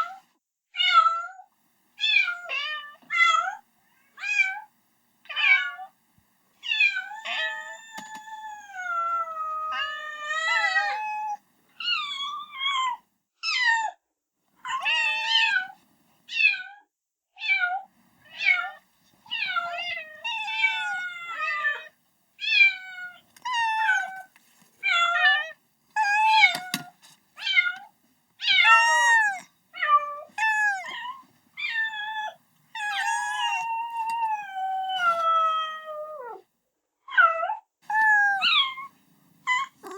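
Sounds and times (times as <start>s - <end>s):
kitten meowing: 6.7s - 12.0s, 24.9s - 27.8s, 28.4s - 36.4s, 37.9s - 38.9s, 39.5s - 39.9s.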